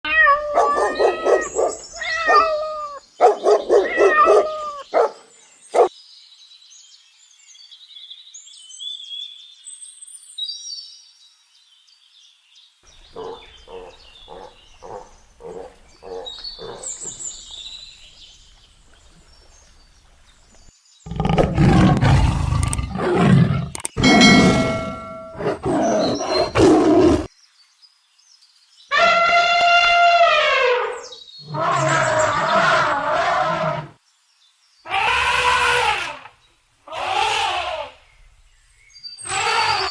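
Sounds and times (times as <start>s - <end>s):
short evenly spaced animal calls: 13.0s - 17.6s, 34.8s - 38.0s, 39.2s - 39.9s
pitched bending animal calls: 21.1s - 27.3s.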